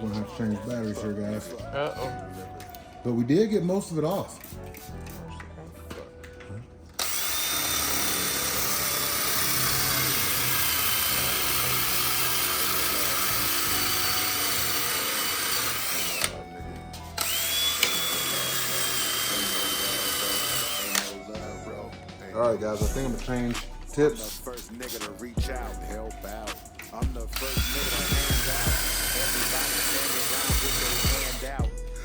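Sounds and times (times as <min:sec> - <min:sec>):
cordless drill whining: 0:06.0 - 0:25.3, 0:26.6 - 0:32.0.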